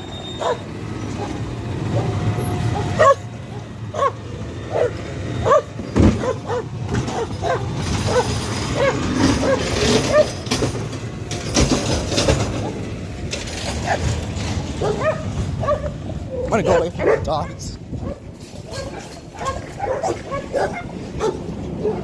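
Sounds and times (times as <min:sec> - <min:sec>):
garbage truck engine rumbling: 0:00.0 - 0:22.0
dogs barking: 0:00.4 - 0:10.4, 0:13.8 - 0:22.0
mechanical clanking and rattling: 0:05.8 - 0:15.8, 0:18.0 - 0:20.2.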